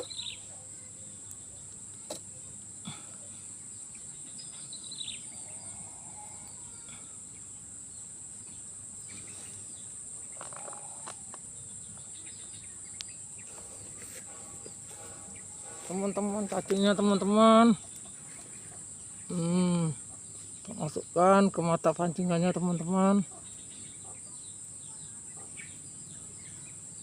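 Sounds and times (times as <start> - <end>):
falling bird chirp: 0.0 - 0.6
insect chorus buzzing: 0.0 - 27.0.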